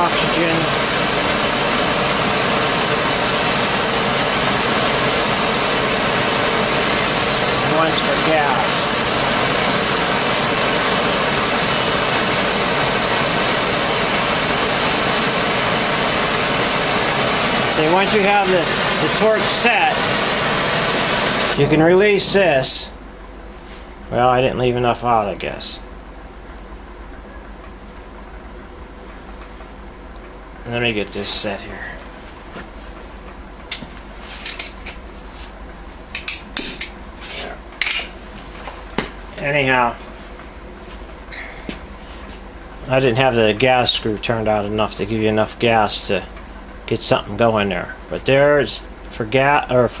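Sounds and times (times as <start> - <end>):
welding torch flame hissing: 0.0 - 21.8.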